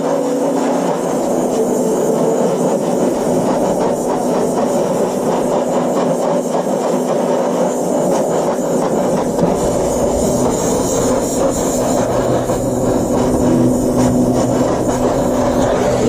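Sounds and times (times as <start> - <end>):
metalworking on steel: 0.6 - 6.4, 7.8 - 16.0
faint steady hum: 7.9 - 16.0.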